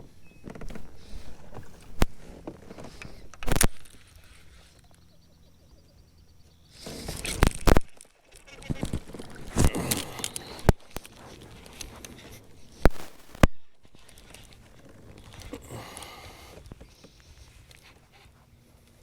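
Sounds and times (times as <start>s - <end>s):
steady rustling: 0.0s - 4.8s, 6.7s - 19.0s
fishing gear knocking and clattering: 7.0s - 16.9s.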